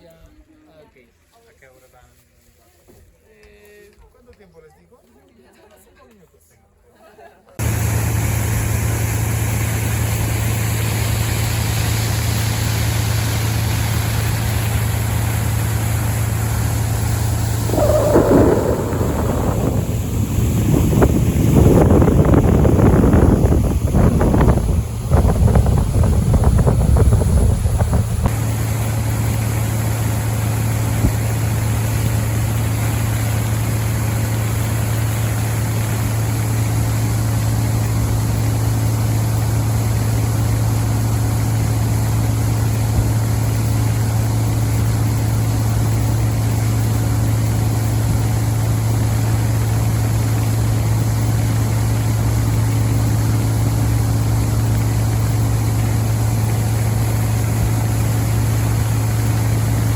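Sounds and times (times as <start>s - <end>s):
wind buffeting microphone: 17.2s - 28.3s.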